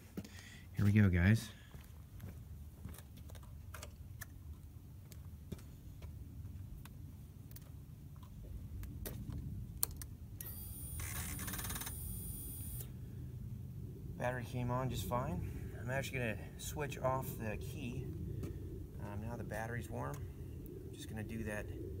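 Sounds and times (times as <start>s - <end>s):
high electrical whine: 10.4s - 12.9s.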